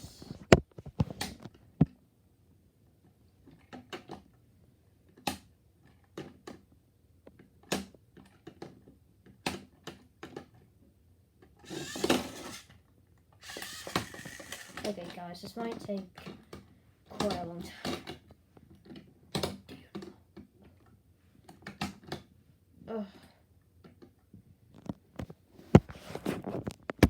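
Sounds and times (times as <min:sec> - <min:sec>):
toys clicking and knocking: 0:11.6 - 0:12.7, 0:13.4 - 0:20.1.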